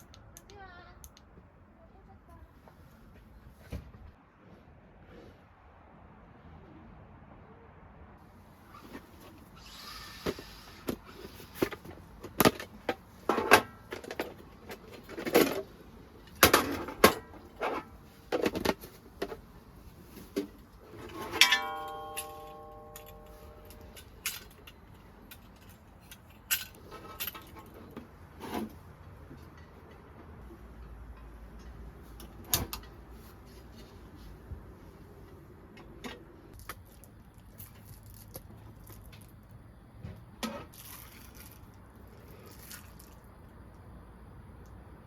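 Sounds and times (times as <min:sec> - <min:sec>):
camping gear clicking and knocking: 0:10.2 - 0:33.1
metal item ringing: 0:21.3 - 0:24.0.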